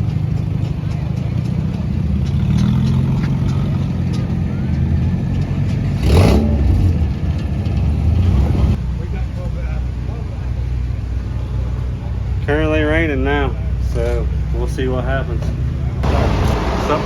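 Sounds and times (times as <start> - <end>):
car engine running: 0.0 - 17.0
engine revving burst: 16.0 - 17.0.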